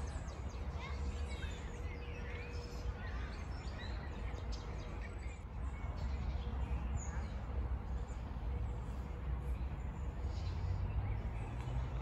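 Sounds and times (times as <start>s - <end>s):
songbirds chirping and singing: 0.0s - 9.0s.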